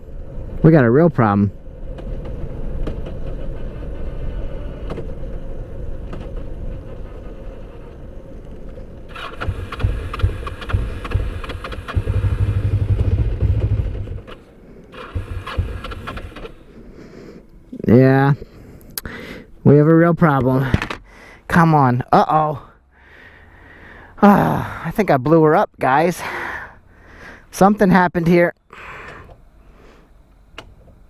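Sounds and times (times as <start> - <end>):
motorcycle engine running poorly: 9.1 - 16.6.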